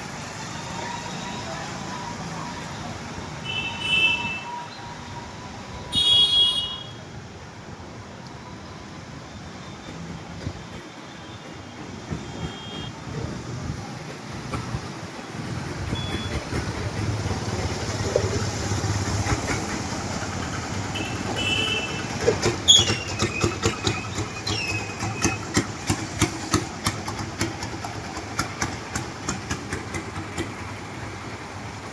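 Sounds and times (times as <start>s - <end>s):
street traffic: 0.0s - 31.9s
motor vehicle engine running: 15.6s - 31.9s
short falling squeals: 22.6s - 25.3s.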